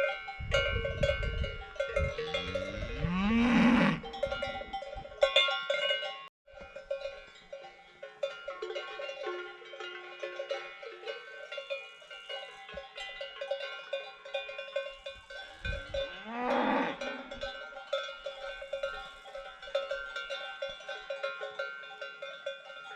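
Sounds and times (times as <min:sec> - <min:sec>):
cowbells clanking: 0:00.0 - 0:22.9
cow mooing: 0:02.0 - 0:04.1, 0:16.1 - 0:17.4.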